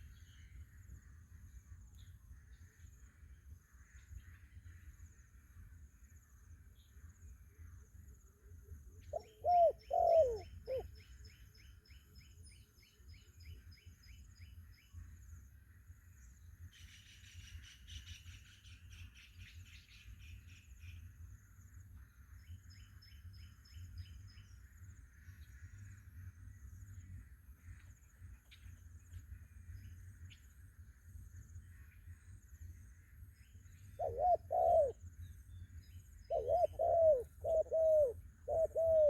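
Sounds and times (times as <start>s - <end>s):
dove cooing: 9.1s - 10.9s, 34.0s - 35.0s, 36.3s - 39.0s
birds chirping: 36.3s - 39.0s.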